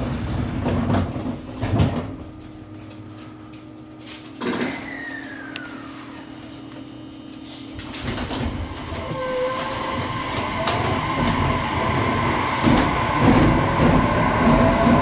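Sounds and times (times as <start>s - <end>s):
wheel and rail rumble: 0.0s - 4.4s, 6.1s - 15.0s
electric train motor whine: 7.8s - 15.0s.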